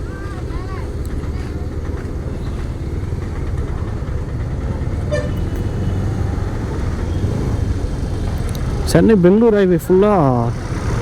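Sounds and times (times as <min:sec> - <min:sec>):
motorcycle engine rumble: 0:00.0 - 0:11.0
vehicle horn toot: 0:05.0 - 0:06.1.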